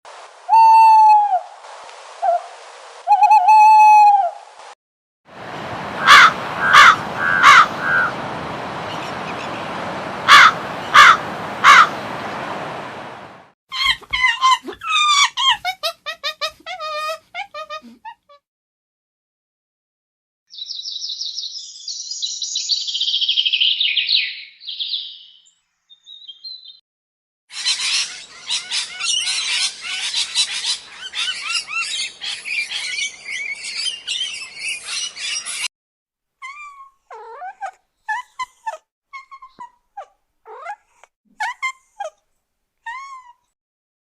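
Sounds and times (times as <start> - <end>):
birds chirping: 5.4 - 13.4
single bird calls arching in pitch: 6.0 - 8.1.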